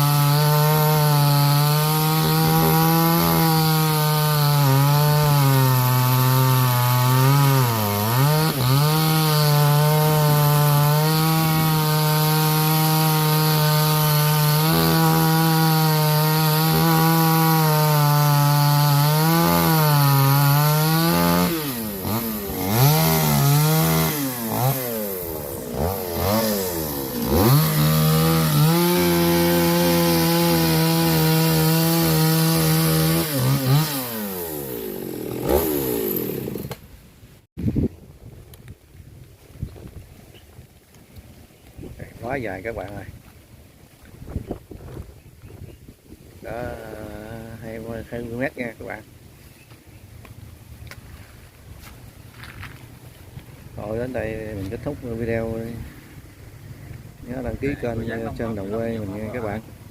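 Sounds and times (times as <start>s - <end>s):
chainsaw cutting wood: 0.0s - 36.9s.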